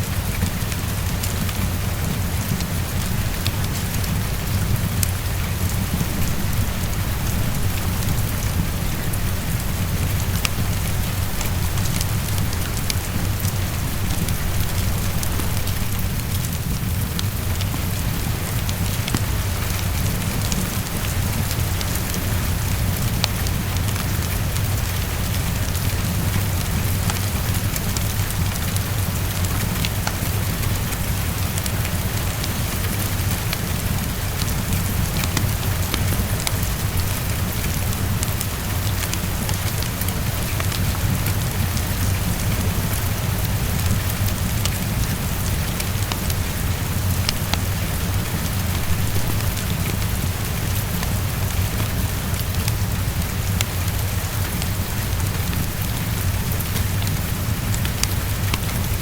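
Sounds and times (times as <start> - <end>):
heavy rain against window: 0.0 - 59.0
small crackles and ticks: 0.0 - 59.0.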